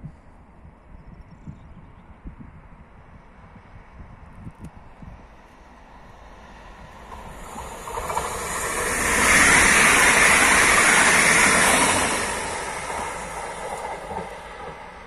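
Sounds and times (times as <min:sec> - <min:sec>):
train passing at speed: 0:02.1 - 0:15.0.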